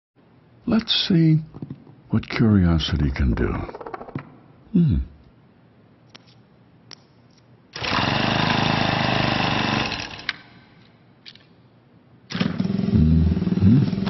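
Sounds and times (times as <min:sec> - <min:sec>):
engine starting: 0:07.8 - 0:08.2, 0:12.3 - 0:14.0
small engine running rough: 0:12.4 - 0:14.0.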